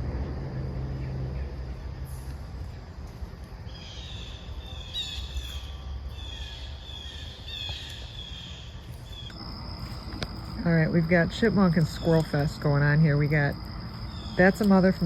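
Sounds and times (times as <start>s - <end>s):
birds chirping: 3.6s - 15.0s.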